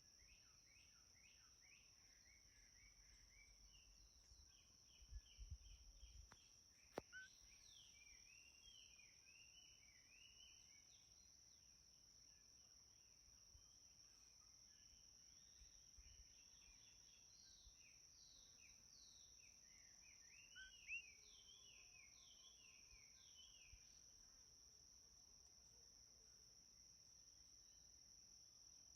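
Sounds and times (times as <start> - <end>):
insect drone: 0.0 - 28.9
small birds chirping: 0.2 - 11.6, 13.6 - 24.1.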